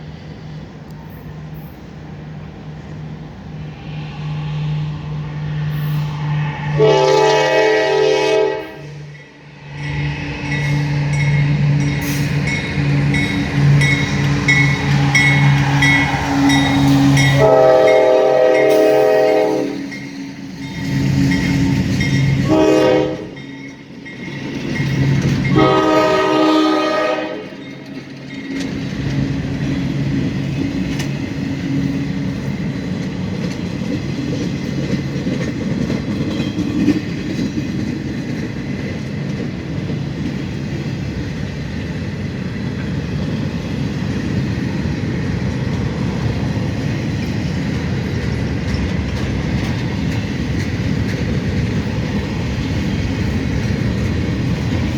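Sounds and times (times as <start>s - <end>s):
train wheels rumbling on rails: 0.0s - 54.9s
locomotive air horn blasts: 6.7s - 9.1s, 16.1s - 19.9s, 22.4s - 23.4s, 25.5s - 27.6s.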